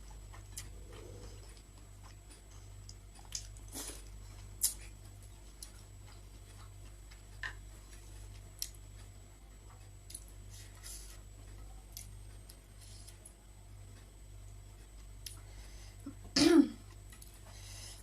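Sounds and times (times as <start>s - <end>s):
soft chewing: 0.0s - 18.0s
steady low hum: 0.0s - 18.0s.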